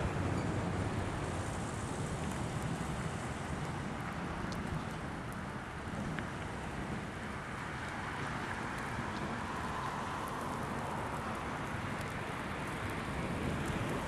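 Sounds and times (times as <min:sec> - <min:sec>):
steady rain: 0:00.0 - 0:14.0
wind on microphone: 0:00.0 - 0:14.0.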